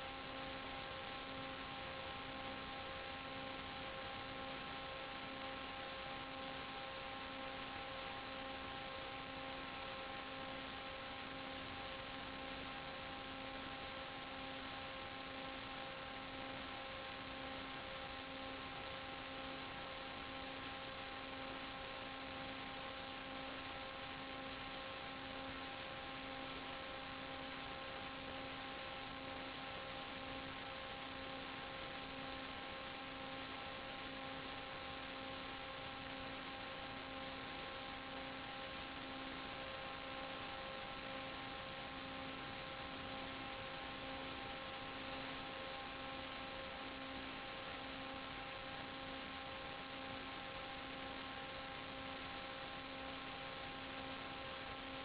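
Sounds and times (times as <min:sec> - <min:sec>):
electrical hum with hiss: 0:00.0 - 0:55.0.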